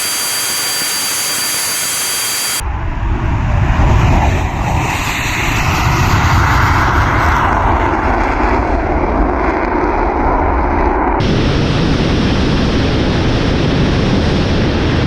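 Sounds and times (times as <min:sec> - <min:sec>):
jet engines running: 0:00.0 - 0:03.2, 0:11.2 - 0:15.0.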